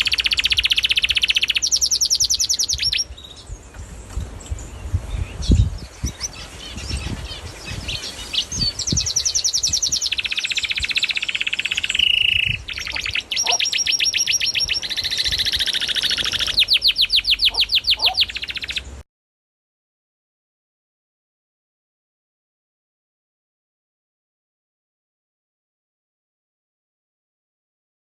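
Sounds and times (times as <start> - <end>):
canary singing trills: 0.0 - 19.0.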